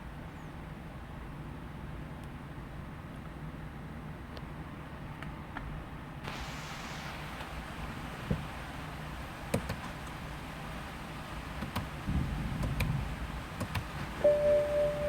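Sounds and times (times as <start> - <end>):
low steady hum: 5.7 - 15.0
sharp clicks: 13.6 - 13.9
steady pitched tone: 14.2 - 15.0.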